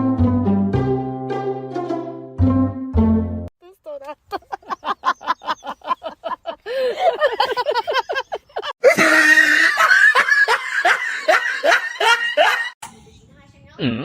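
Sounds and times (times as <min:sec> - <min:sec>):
person laughing in bursts: 0:04.2 - 0:12.8.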